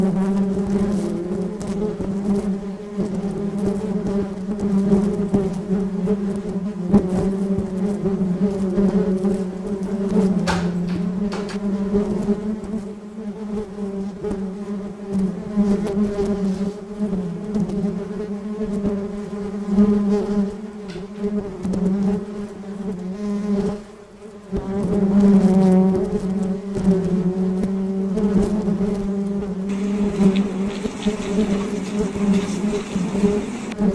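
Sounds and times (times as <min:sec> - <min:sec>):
honeybee buzzing: 0:00.0 - 0:33.9.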